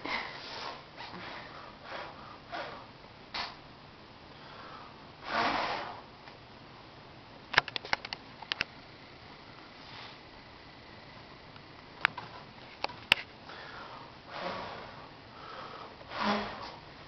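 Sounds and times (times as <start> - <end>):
man blowing on embers: 5.2 - 6.1, 13.6 - 16.8
sharp clicks: 7.5 - 8.8.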